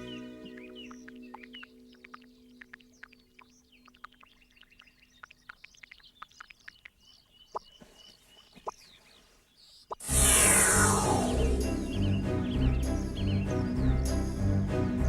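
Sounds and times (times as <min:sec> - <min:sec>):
small birds chirping: 0:00.0 - 0:15.0
loud music: 0:10.1 - 0:15.0.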